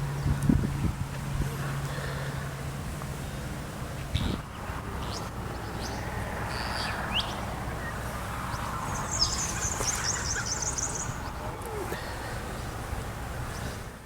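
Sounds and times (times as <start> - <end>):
birds chirping: 4.0 - 13.9
high rapid bird trill: 8.9 - 11.4.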